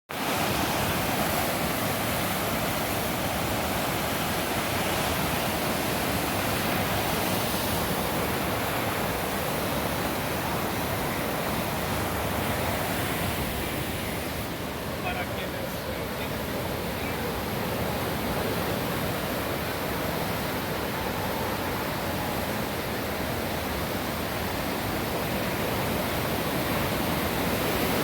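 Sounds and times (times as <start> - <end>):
floodwater rushing in a river: 0.1 - 28.0.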